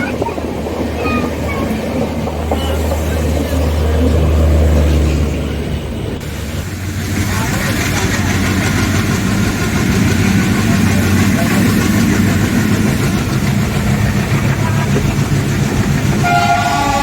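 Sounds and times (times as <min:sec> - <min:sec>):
diesel train droning: 0:00.0 - 0:17.0
locomotive horn chord: 0:16.2 - 0:17.0.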